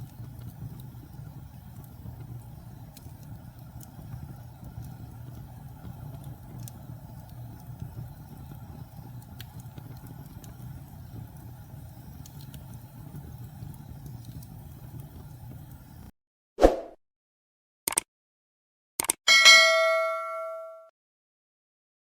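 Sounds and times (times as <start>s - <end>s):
fire rumbling with crackles: 0.0s - 16.1s.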